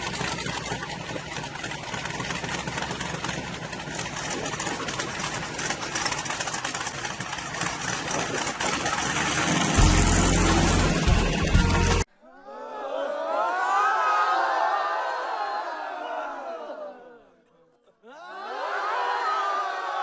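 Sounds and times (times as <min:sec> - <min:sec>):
car engine idling and revving: 0:00.0 - 0:12.1.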